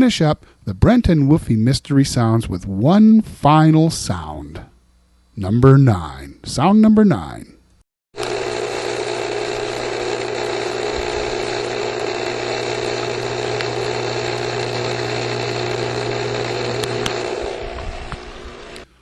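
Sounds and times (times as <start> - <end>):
pool pump motor hum: 8.2 - 19.0.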